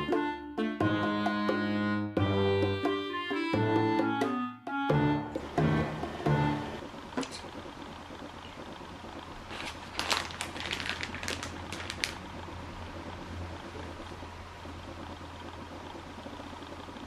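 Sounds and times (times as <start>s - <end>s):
steady low hum: 4.9s - 17.0s.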